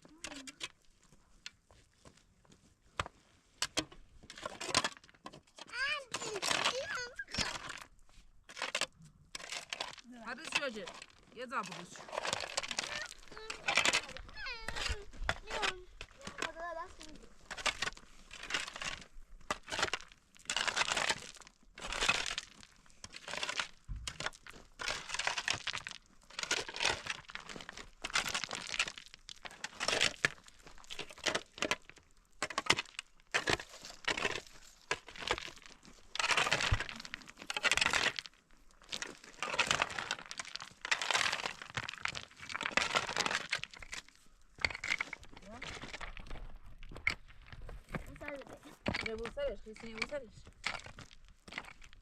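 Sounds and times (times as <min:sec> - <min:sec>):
dry branches crackling and crunching: 0:04.2 - 0:52.0.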